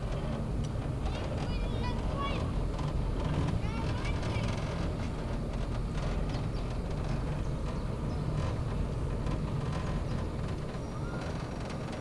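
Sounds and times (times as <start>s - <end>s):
cable car rumble and hiss: 0.0s - 12.0s.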